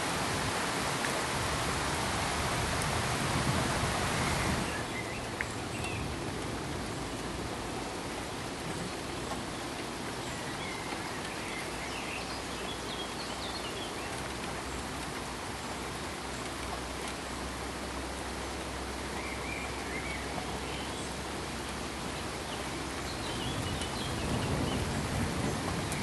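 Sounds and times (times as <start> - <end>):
pink noise hiss: 0.0 - 26.0.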